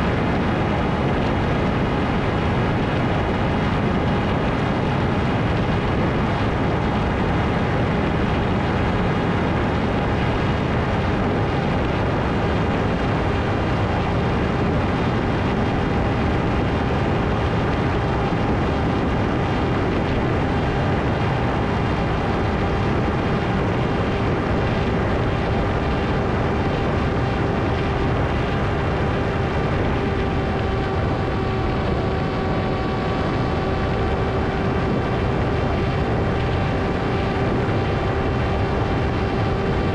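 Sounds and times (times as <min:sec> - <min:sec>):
electric motor and propeller whine: 0:00.0 - 0:39.9
rushing air: 0:00.0 - 0:39.9.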